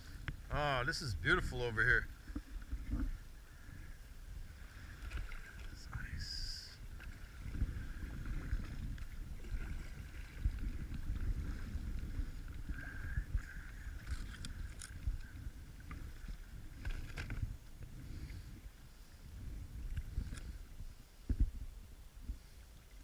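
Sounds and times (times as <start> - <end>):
water washing along hull: 1.5 - 21.7
paddle blades dipping in water: 4.6 - 6.0, 6.8 - 18.5.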